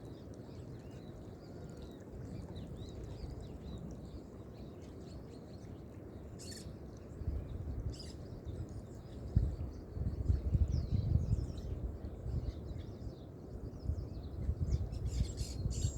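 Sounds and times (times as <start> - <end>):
small birds chirping: 0.0 - 15.9
low gusty rumble: 9.1 - 15.9.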